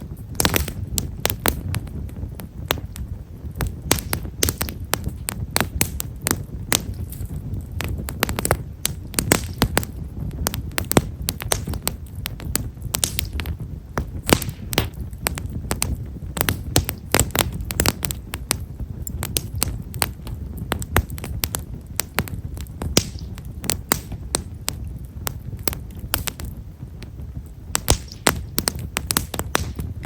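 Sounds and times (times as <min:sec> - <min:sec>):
fire low rumble: 0:00.0 - 0:30.0
firewood crackling and popping: 0:00.0 - 0:30.0.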